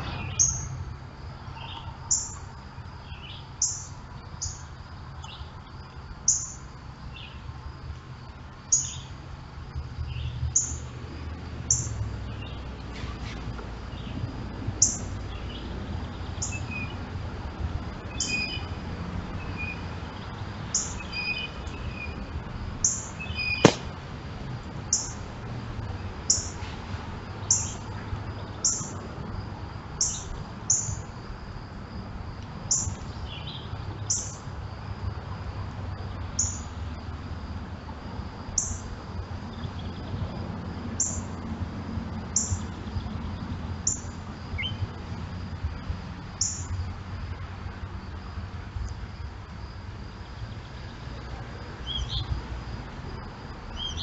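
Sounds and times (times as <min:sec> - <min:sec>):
sharp click: 0:23.7 - 0:23.9.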